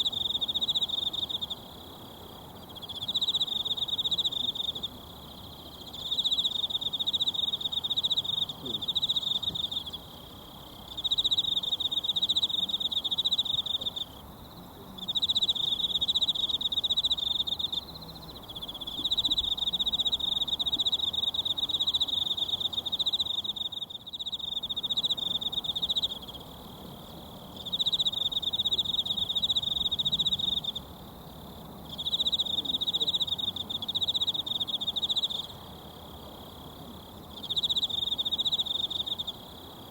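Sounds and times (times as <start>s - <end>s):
pulsed insect song: 0.0s - 39.9s.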